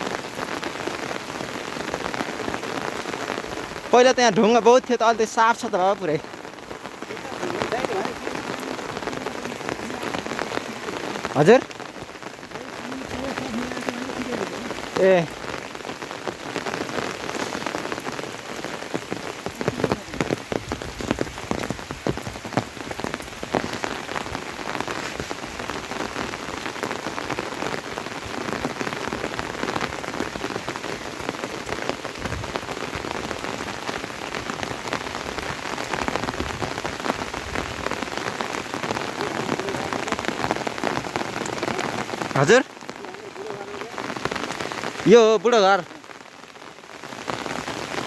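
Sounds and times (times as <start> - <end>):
steady rain falling: 0.0 - 48.0.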